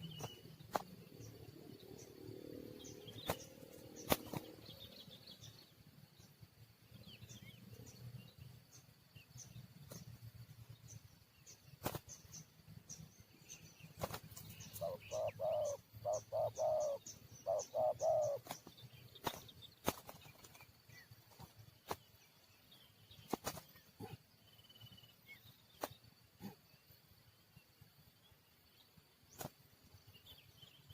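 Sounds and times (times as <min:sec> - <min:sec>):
small birds chirping: 0:00.0 - 0:30.9
dove cooing: 0:14.7 - 0:18.6.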